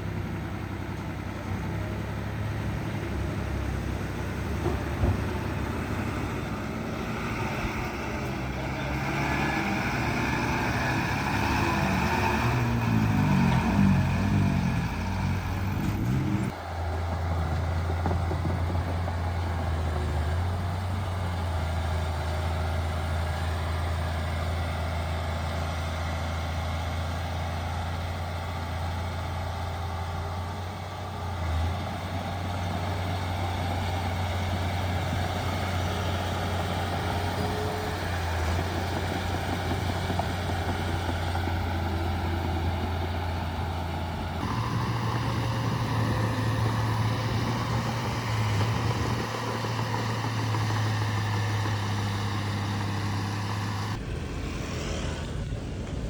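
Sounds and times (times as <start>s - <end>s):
diesel engine of earthmoving machine: 0.0s - 56.0s.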